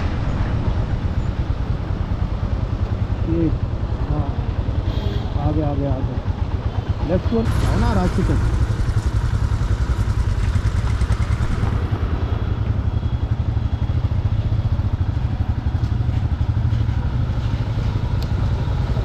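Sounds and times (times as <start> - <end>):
motorcycle engine rumbling: 0.0 - 19.0.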